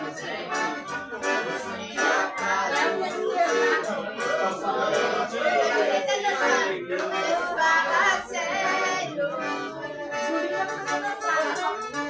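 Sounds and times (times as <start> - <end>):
accordion dance music: 0.0 - 12.0
percussion beat: 0.1 - 6.0, 10.2 - 12.0.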